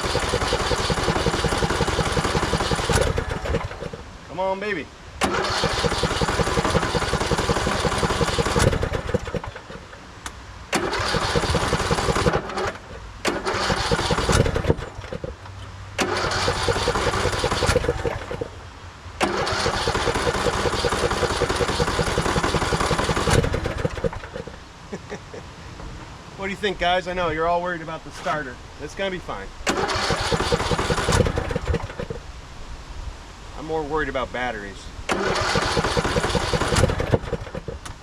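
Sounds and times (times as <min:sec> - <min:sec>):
lawn tractor engine cranking: 0:00.0 - 0:04.1, 0:05.2 - 0:10.0, 0:10.7 - 0:18.6, 0:19.2 - 0:24.6, 0:29.6 - 0:32.2, 0:35.1 - 0:38.0.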